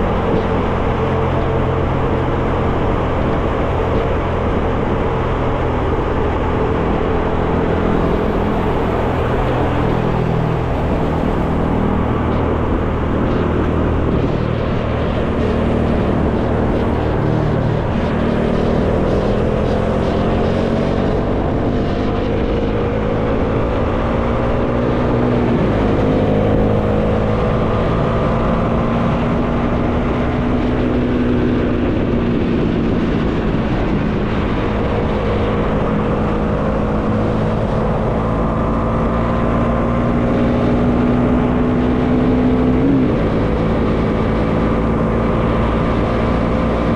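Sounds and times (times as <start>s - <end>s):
motorcycle engine running: 0.0s - 29.9s
wind noise: 0.0s - 46.9s.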